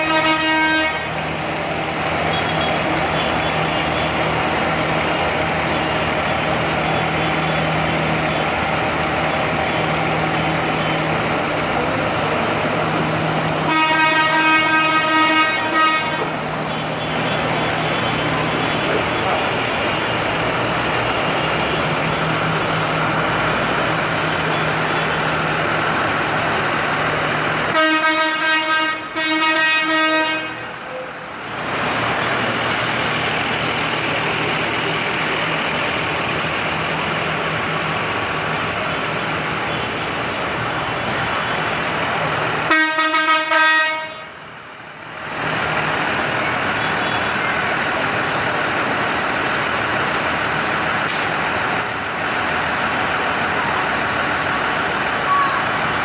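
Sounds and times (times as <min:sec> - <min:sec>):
vehicle horn blasts: 0:00.0 - 0:01.1, 0:02.3 - 0:03.3, 0:13.7 - 0:16.8, 0:27.7 - 0:30.7, 0:42.7 - 0:44.3
tractor engines running: 0:00.0 - 0:56.0.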